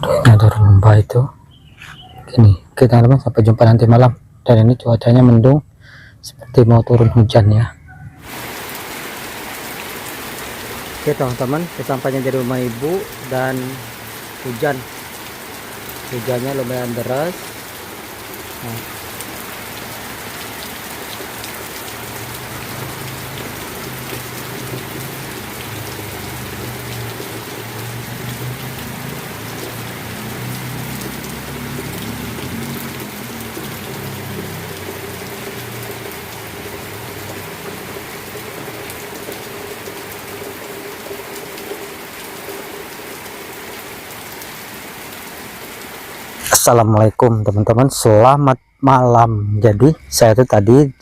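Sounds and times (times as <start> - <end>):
heavy rain falling: 8.1 - 46.9.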